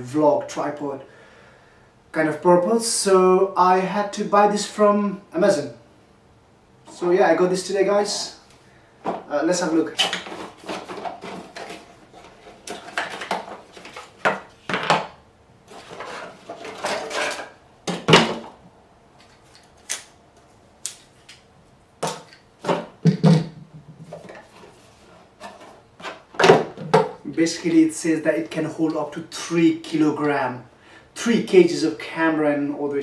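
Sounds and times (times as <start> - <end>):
packaging rustling: 10.0 - 14.8, 15.7 - 17.6.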